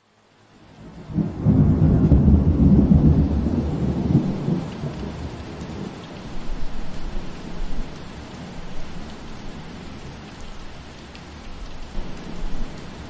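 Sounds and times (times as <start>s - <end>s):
steady rain hiss: 0.0s - 13.0s
rolling thunder: 0.8s - 6.0s.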